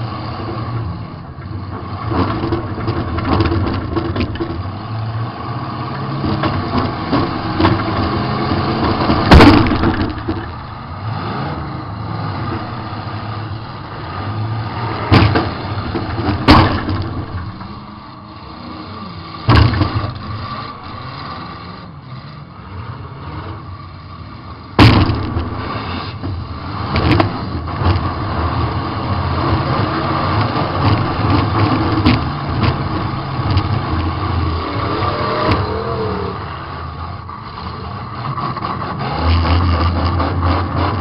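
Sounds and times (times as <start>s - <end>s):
car engine revving: 0.0s - 41.0s
heavy metal crashes: 6.4s - 10.9s, 15.0s - 17.9s, 24.8s - 27.3s.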